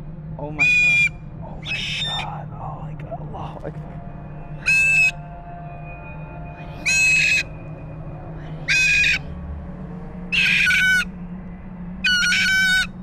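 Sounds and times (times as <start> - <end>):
bird calling: 0.5 - 2.4, 4.6 - 5.2, 6.6 - 7.5, 8.4 - 9.3, 10.3 - 11.1, 12.1 - 13.0.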